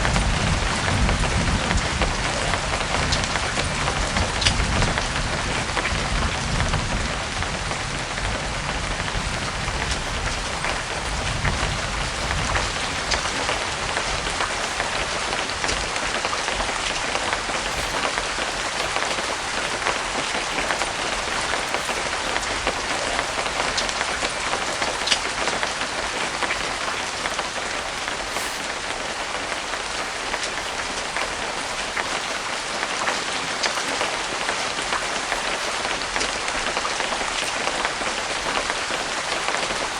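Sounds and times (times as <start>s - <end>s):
light rain falling: 9.1s - 39.9s
raindrops ticking: 9.2s - 39.9s.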